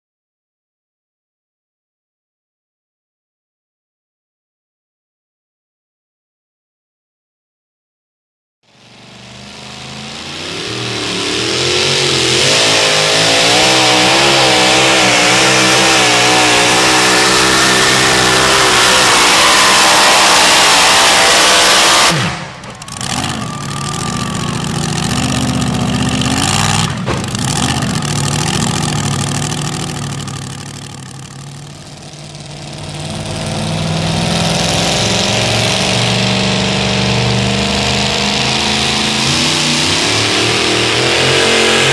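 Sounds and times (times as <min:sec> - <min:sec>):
truck engine at full throttle: 0:08.7 - 0:41.9.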